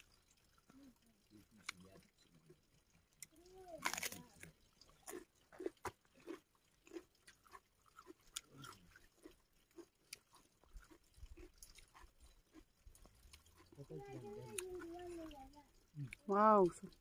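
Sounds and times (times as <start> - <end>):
person chewing with lip smacks: 3.2 - 13.8.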